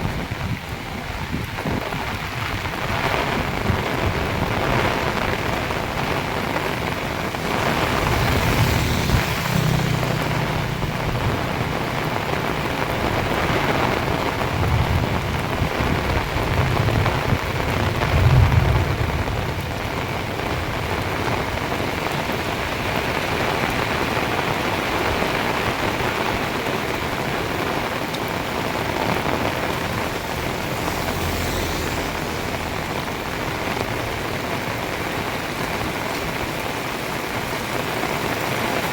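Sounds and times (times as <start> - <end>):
heavy rain pouring: 0.0 - 38.9
low rumbles: 3.4 - 22.9.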